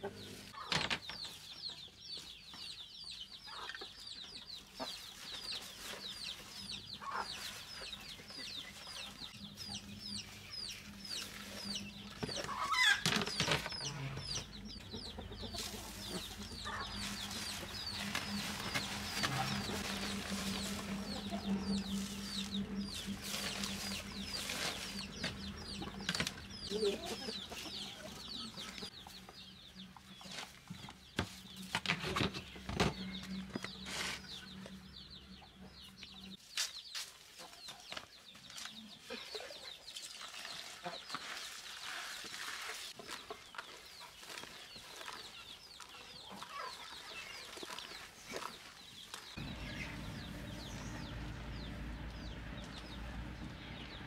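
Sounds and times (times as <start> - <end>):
chickens clucking: 0.0 - 36.4, 37.2 - 54.0
chicks peeping: 0.0 - 54.0
steady low hum: 13.9 - 28.9, 49.4 - 54.0.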